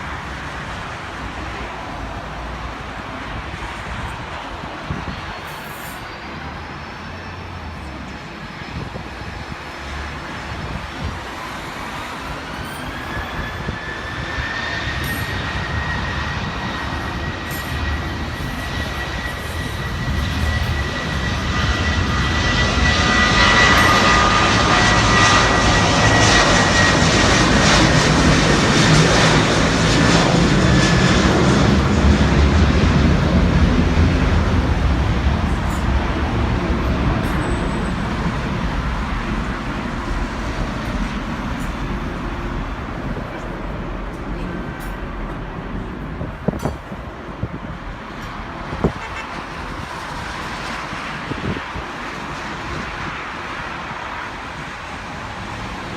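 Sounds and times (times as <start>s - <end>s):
jet engines spooling up: 11.4s - 48.8s.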